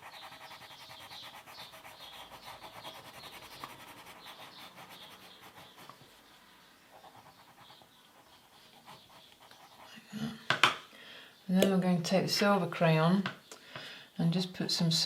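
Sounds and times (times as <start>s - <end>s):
crayon rubbing on paper: 0.0s - 6.2s, 6.9s - 10.0s.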